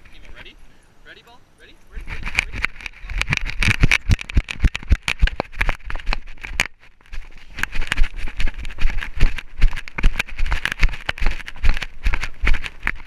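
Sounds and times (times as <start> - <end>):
camera knocking and rattling: 2.0 - 13.0
dog footfalls: 3.2 - 13.0.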